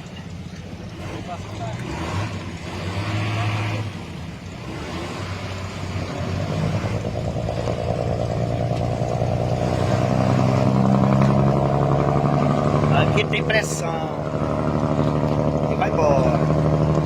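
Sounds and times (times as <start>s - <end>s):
boat diesel engine running hard: 0.0s - 17.0s.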